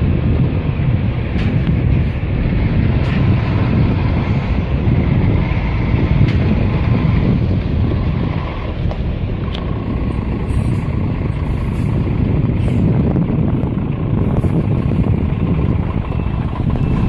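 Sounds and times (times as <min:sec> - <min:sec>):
heavy truck engine rumbling: 0:00.0 - 0:17.0
reversing beeper: 0:14.3 - 0:17.0.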